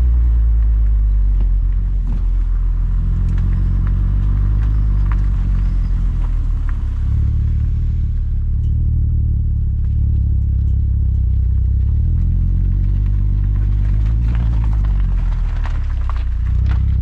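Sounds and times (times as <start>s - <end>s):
car exhaust low drone: 0.0s - 17.0s.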